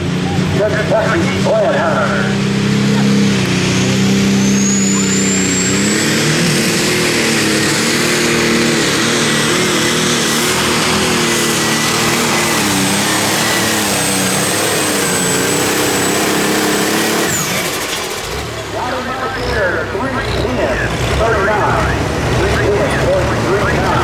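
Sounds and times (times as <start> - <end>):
tractor engine droning under load: 0.0 - 24.0.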